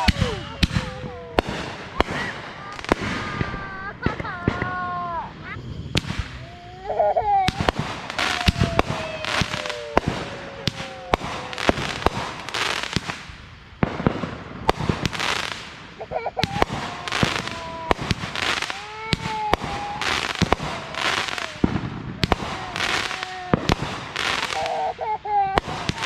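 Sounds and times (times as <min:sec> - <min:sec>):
fireworks bangs and pops: 0:00.0 - 0:26.0
fireworks crackling: 0:00.0 - 0:26.0.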